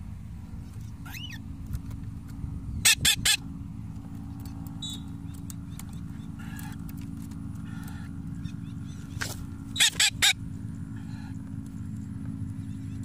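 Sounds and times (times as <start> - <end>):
bird chirping: 0.6 - 1.4, 4.4 - 6.8, 7.7 - 10.4, 12.5 - 13.0
bird calling: 0.6 - 1.5, 4.3 - 13.0.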